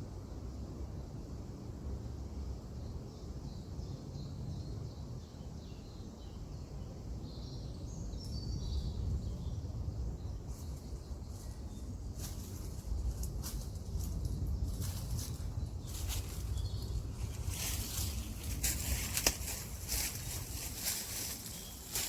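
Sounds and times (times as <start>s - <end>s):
small birds chirping: 2.9s - 22.0s
low outdoor rumble: 6.6s - 22.0s.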